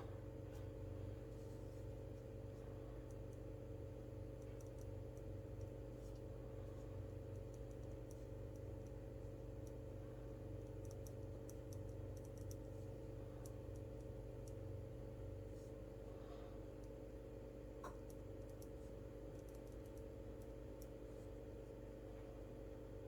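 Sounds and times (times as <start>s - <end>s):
low electrical hum: 0.0s - 23.0s
light clicks of desk work: 4.3s - 14.6s, 17.8s - 21.3s.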